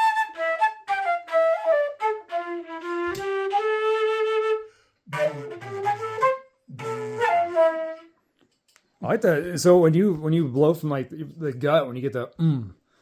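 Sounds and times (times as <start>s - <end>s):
flute growling: 0.0s - 8.1s
flute playing notes: 0.0s - 8.2s.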